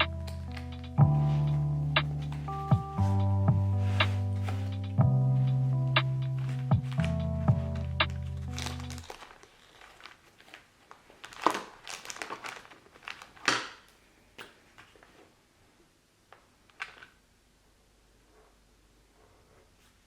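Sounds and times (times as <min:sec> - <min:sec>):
crinkling handling noise: 0:00.0 - 0:15.4.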